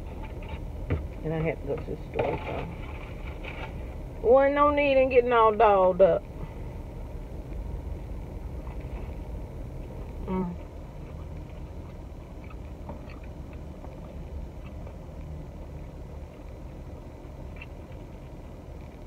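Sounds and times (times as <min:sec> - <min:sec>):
low rumble inside vehicle cabin: 0:00.0 - 0:19.0
person humming: 0:10.2 - 0:10.6.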